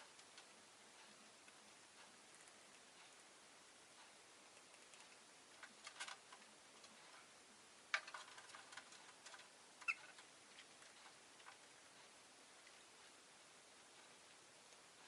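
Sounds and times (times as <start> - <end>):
bird chirp: 9.8 - 10.2.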